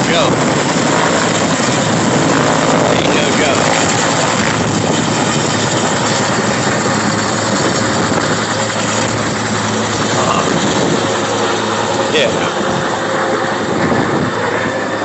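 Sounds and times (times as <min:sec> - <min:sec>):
helicopter rotor and engine noise: 0:00.0 - 0:15.0.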